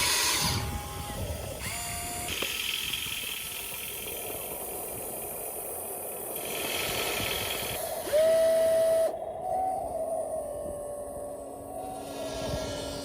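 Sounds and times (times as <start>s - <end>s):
motor whine rising in pitch: 0.0s - 4.6s, 6.3s - 13.0s
toy motors whirring with rattle: 0.0s - 9.1s.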